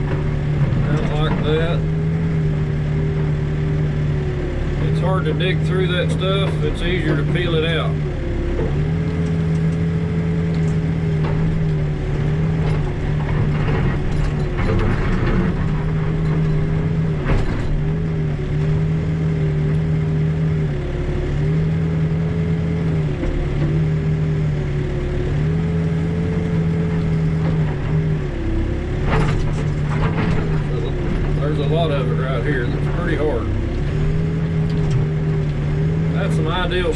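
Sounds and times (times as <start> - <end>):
backhoe engine running under load: 0.0 - 36.9.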